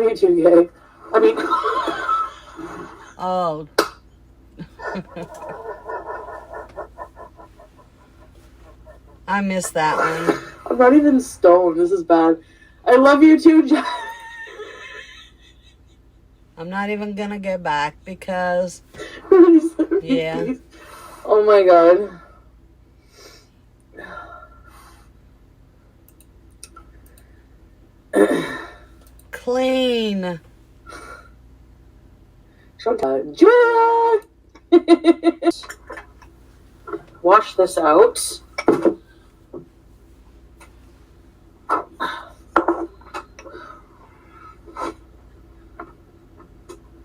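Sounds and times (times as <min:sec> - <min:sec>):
faint clicks: 0:26.0 - 0:27.3.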